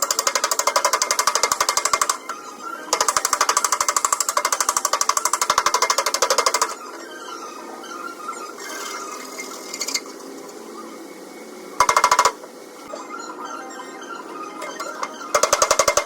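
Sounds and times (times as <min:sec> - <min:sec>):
power tool hammering on steel: 0:11.8 - 0:12.4, 0:15.4 - 0:16.0.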